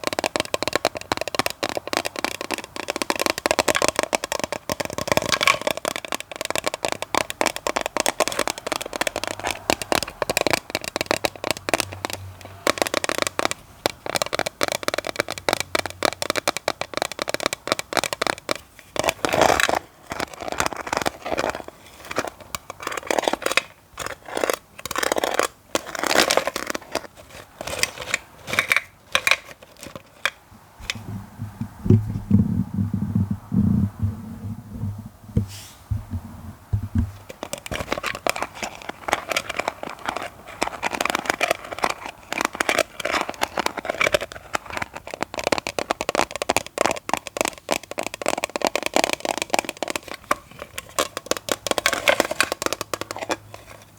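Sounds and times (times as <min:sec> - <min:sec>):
tapping and scratching on microphone: 0:00.0 - 0:53.9
low muffled thumping: 0:30.8 - 0:37.2.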